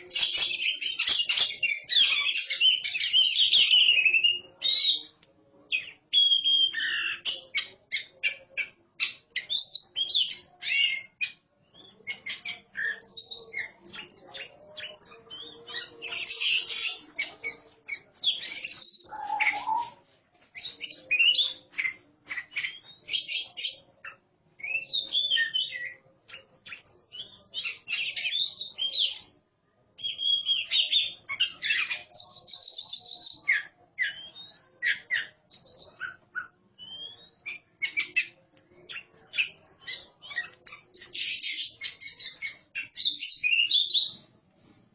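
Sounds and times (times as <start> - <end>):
birds singing varied whistles: 0.0 - 5.1, 5.7 - 20.0, 20.6 - 29.4, 30.0 - 44.8
long held bird whistle: 6.1 - 7.2, 18.3 - 20.0, 31.8 - 34.7.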